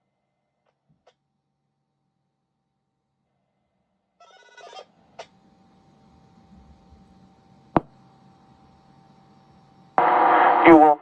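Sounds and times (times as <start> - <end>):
radio click: 10.0 - 11.0.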